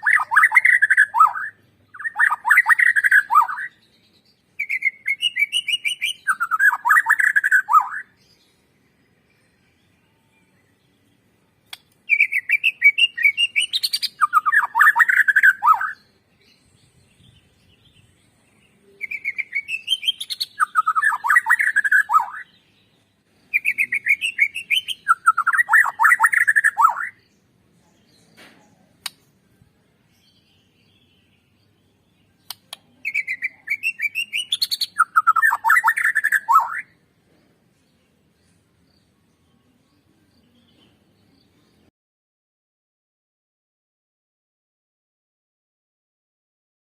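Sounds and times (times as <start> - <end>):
songbird singing chattering trills: 0.0 - 37.0.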